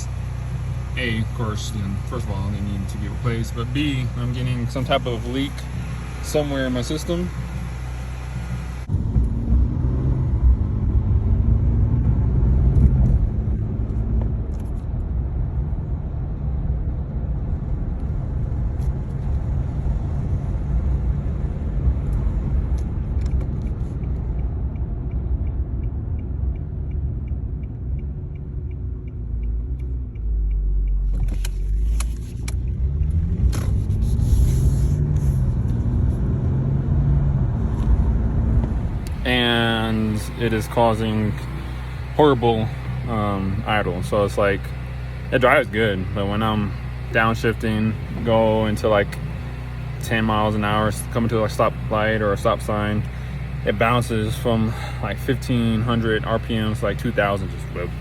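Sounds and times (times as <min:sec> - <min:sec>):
car engine running: 0:00.0 - 0:58.0
faint regular ticking: 0:22.1 - 0:33.3.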